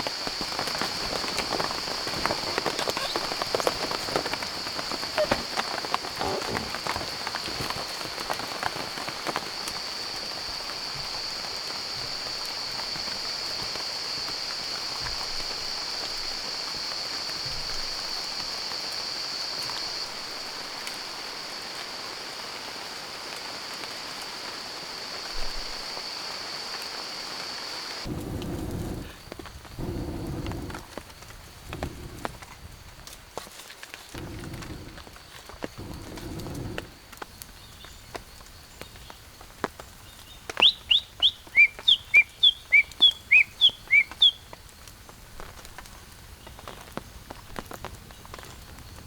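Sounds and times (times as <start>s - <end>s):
raindrops pattering: 0.0s - 49.0s
steady rain falling: 0.0s - 49.0s
low rumble: 28.1s - 31.0s, 34.2s - 35.2s, 35.8s - 37.0s.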